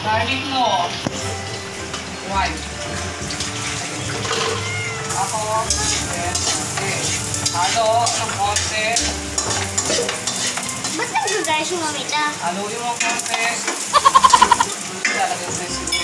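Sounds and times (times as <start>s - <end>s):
food sizzling in oil: 1.1s - 16.0s
wooden spatula scraping and tapping: 5.7s - 11.4s.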